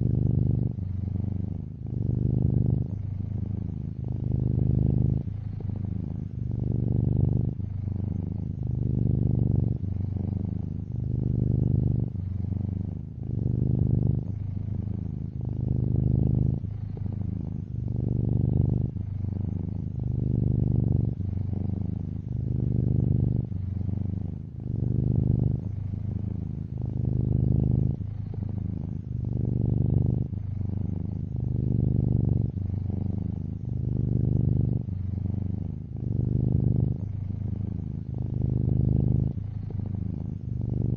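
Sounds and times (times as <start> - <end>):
cat purring: 0.0 - 40.9.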